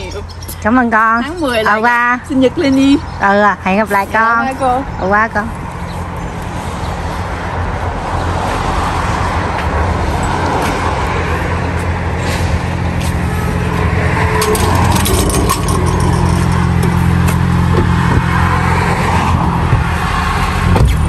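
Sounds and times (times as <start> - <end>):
wire-mesh gate rattling shut: 14.4 - 17.1.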